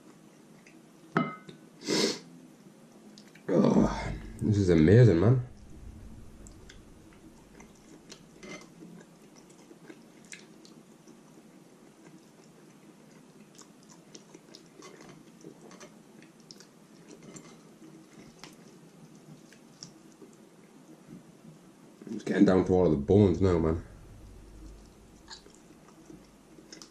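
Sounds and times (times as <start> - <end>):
close chewing of meat: 7.4 - 20.8, 24.4 - 26.9.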